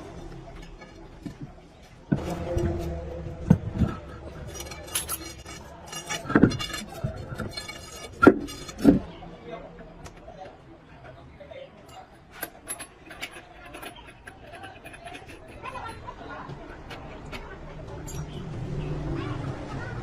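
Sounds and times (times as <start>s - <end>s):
metal tools clinking and rattling: 0.0s - 9.1s, 11.8s - 18.4s.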